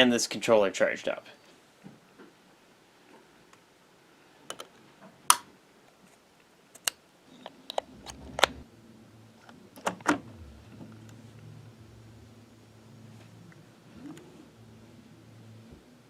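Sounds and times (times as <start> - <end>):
faint low hum: 7.2 - 16.0.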